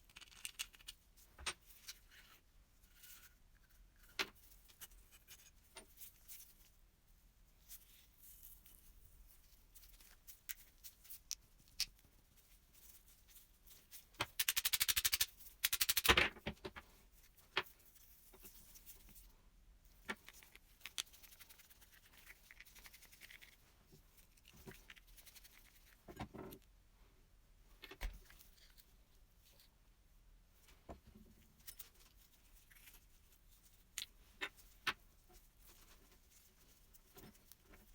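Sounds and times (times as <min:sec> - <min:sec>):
small metal parts clicking: 0:00.0 - 0:01.0, 0:14.4 - 0:16.2.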